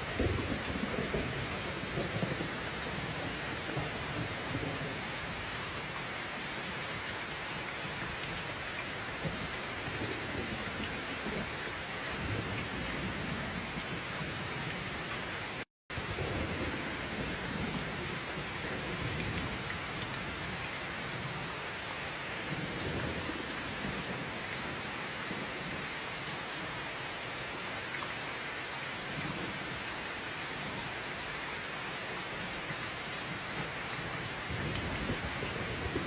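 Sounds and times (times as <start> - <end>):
heavy rain pouring: 0.0 - 36.0
low thunder rumbling: 0.1 - 5.1, 34.4 - 36.0.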